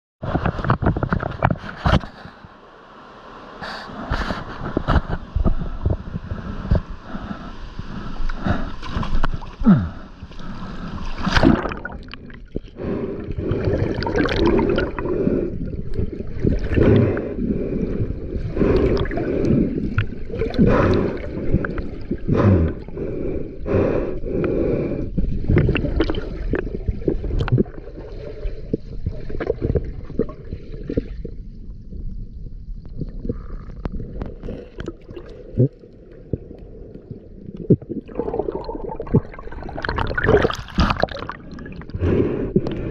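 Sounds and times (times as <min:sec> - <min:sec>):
water gurgling and sloshing: 0:00.2 - 0:42.9
bubbles bursting: 0:11.2 - 0:12.6, 0:13.6 - 0:15.1, 0:25.5 - 0:28.0, 0:33.4 - 0:36.5, 0:37.5 - 0:42.0.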